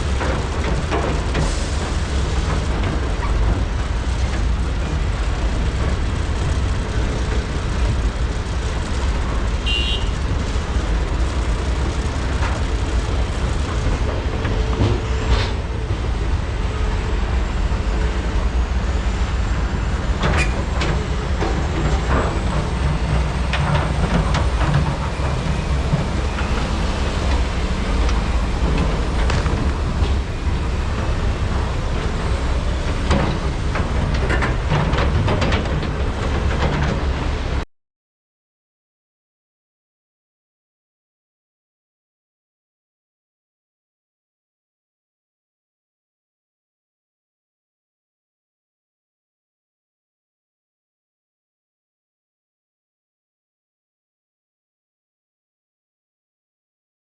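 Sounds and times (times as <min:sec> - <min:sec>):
excavator diesel engines: 0:00.0 - 0:37.7.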